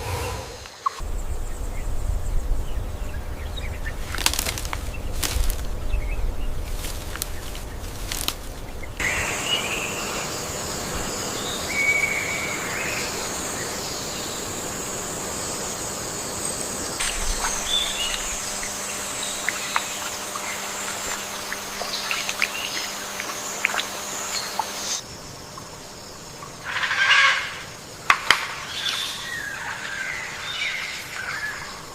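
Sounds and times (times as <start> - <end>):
low rumble: 0.0 - 13.5
high insect drone: 0.0 - 31.9.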